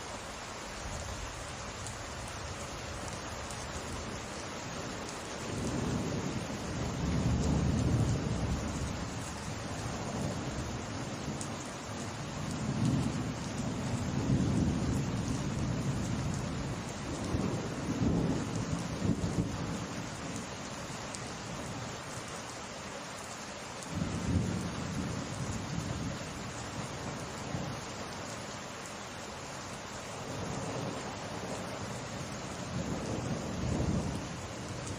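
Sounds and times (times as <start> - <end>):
steady rain falling: 0.0 - 34.9
thunder rumbling: 5.4 - 11.5, 12.3 - 20.4, 23.9 - 27.8, 30.2 - 34.9.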